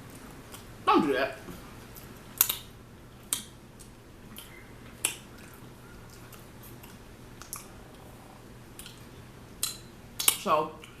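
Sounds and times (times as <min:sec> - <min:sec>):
person chewing: 0:00.0 - 0:00.8, 0:01.8 - 0:11.0.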